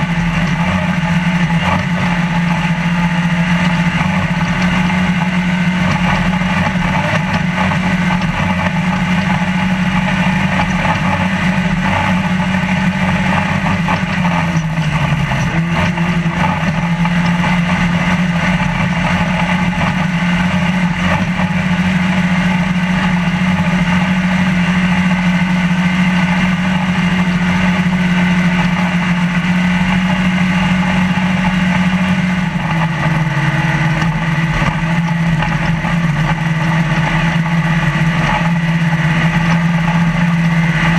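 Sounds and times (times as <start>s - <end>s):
truck engine running hard: 0.0s - 40.9s
truck rattling over terrain: 0.0s - 40.9s.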